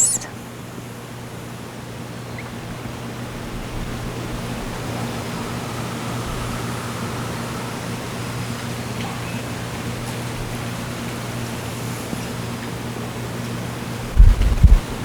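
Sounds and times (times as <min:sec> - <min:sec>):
even hiss: 0:04.2 - 0:10.0.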